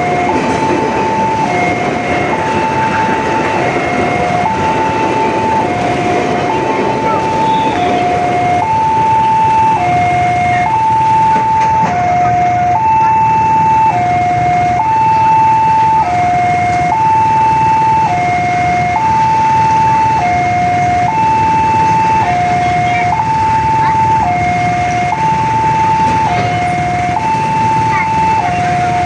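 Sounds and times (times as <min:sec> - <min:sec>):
level crossing two-tone alarm: 0:00.0 - 0:29.0.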